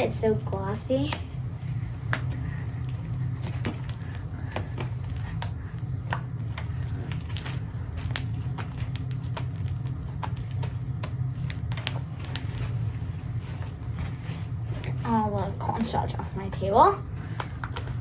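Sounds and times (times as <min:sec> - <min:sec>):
low steady hum: 0:00.0 - 0:18.0
slime squished by hand: 0:02.8 - 0:14.2.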